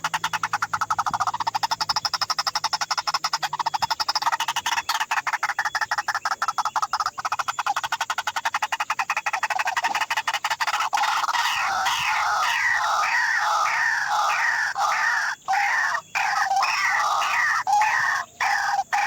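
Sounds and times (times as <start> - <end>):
waterhen calling: 10.7 - 19.0.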